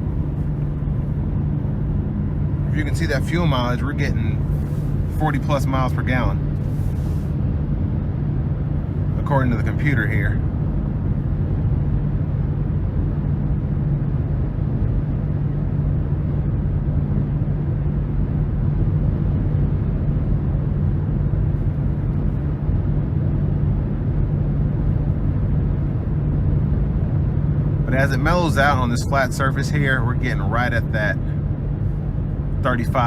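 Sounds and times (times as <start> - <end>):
tyre and road rumble: 0.0 - 11.9
car engine hum: 0.0 - 33.0.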